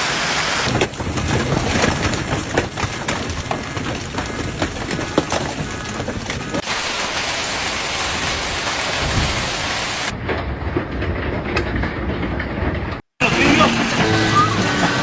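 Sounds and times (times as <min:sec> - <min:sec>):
heavy hail falling: 0:00.0 - 0:10.2
sharp hail hits: 0:00.0 - 0:10.2.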